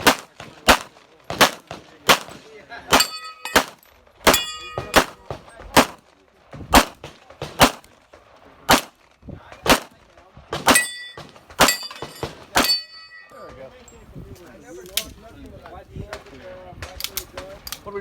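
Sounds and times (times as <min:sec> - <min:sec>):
pistol shots: 0:00.0 - 0:06.0, 0:06.7 - 0:07.9, 0:08.7 - 0:09.0, 0:09.6 - 0:12.8
bullet clanging on steel target: 0:03.0 - 0:05.3, 0:10.7 - 0:13.6.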